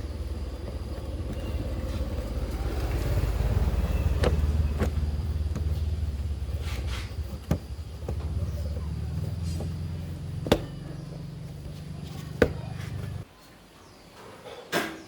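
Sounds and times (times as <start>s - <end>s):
motor humming: 0.0s - 13.2s
sharp knocks: 9.4s - 10.9s.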